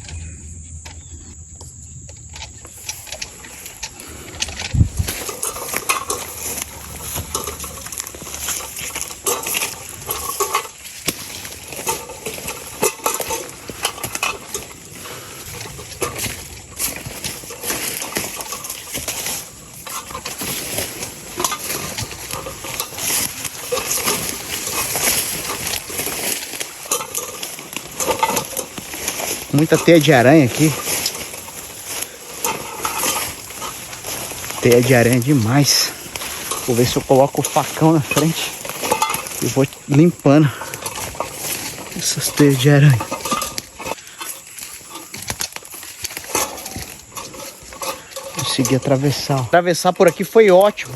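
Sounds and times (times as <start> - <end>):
footsteps crunching through dry leaves: 2.2 - 50.9
body brushing through undergrowth: 2.6 - 50.9.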